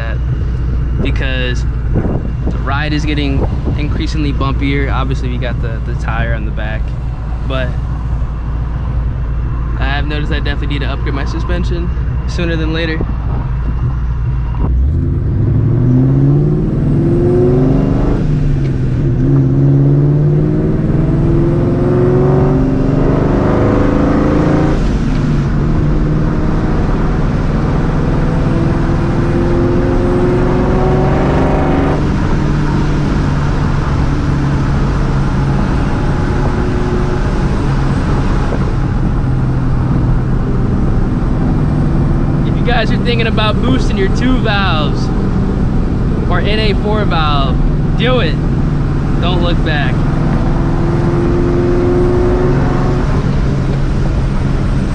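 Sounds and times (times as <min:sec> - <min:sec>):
car engine accelerating through gears: 0:00.0 - 0:54.9.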